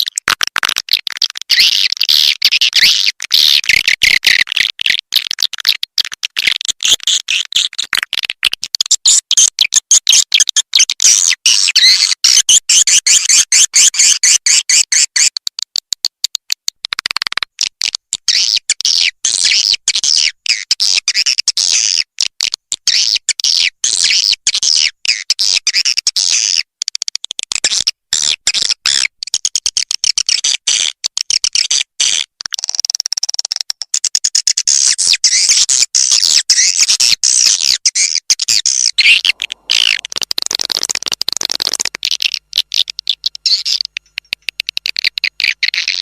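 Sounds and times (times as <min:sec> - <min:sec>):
swiftlets chirping and twittering: 0:37.6 - 0:46.0.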